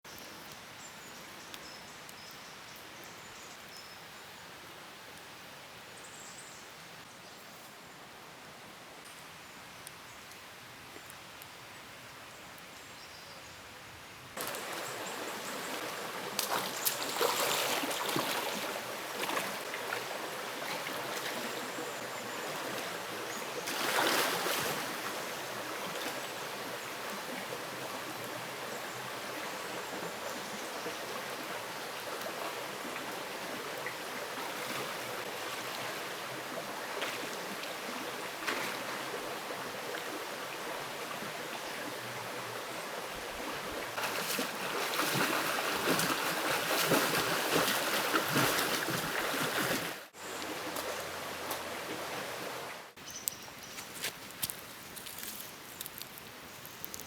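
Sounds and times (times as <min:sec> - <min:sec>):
mountain stream flowing: 0:14.4 - 0:57.0.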